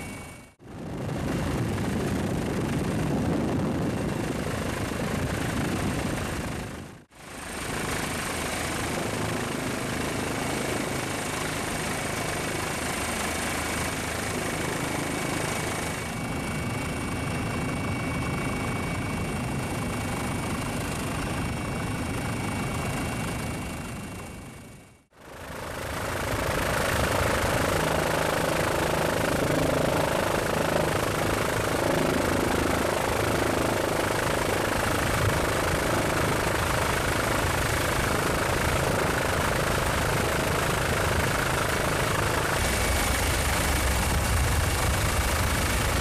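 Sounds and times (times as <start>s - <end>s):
engine drone with high whine: 41.8s - 46.0s.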